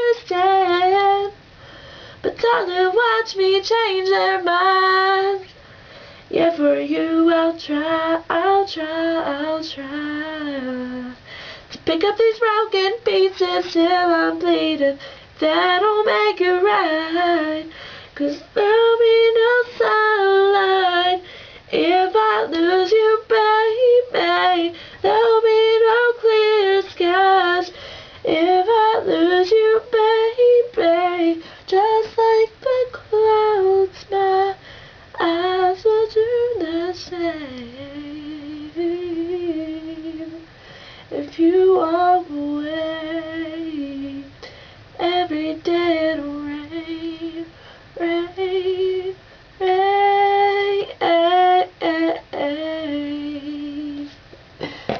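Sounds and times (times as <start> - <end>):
woman singing unaccompanied: 0.0 - 1.5, 2.2 - 5.6, 6.3 - 40.5, 41.1 - 54.2.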